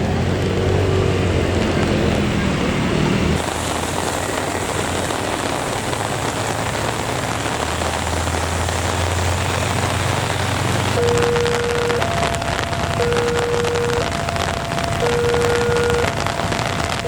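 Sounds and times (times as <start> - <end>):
heavy rain falling: 0.0 - 17.0
thin steady tone: 3.4 - 17.0.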